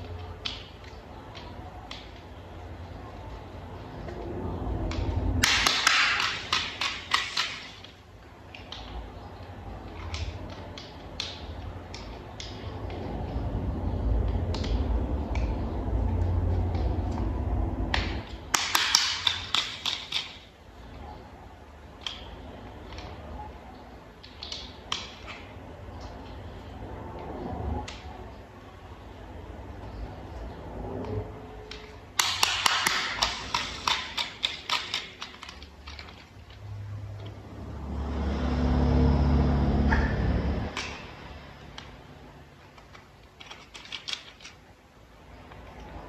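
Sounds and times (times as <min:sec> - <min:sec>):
rapid clicking and tapping: 0:04.8 - 0:09.1, 0:17.9 - 0:20.5, 0:31.7 - 0:36.4.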